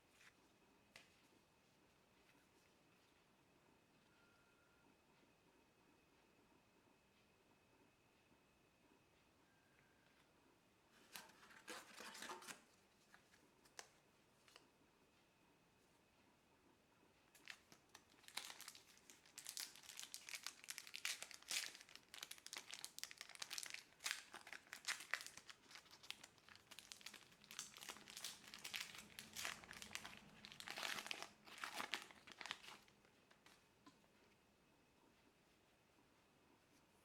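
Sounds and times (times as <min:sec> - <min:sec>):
wrapper crinkling and tearing: 0:17.4 - 0:33.6.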